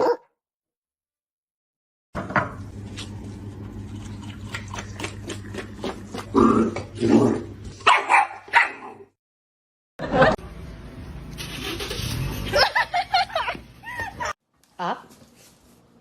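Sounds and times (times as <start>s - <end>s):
dog barking: 0.0s - 0.3s, 7.8s - 9.0s.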